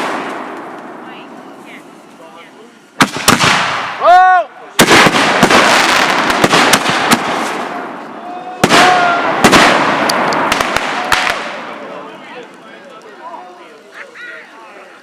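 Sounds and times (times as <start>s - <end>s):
firework bangs: 0.0s - 2.2s, 2.9s - 4.1s, 4.7s - 12.0s
firework bursts: 0.0s - 13.2s
firework crackling: 0.0s - 15.0s.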